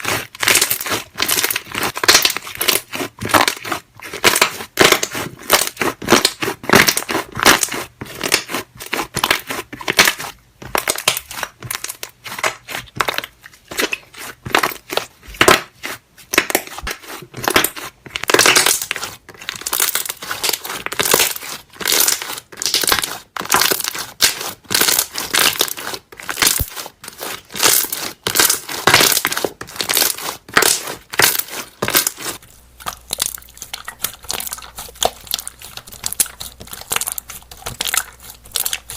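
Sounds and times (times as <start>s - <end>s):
slime squishing and popping: 0.0s - 38.9s.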